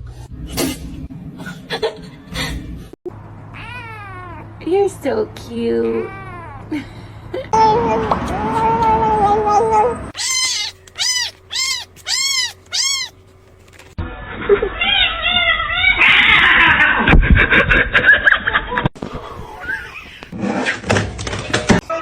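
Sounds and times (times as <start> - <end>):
cat meowing: 3.6 - 4.5, 10.2 - 13.2.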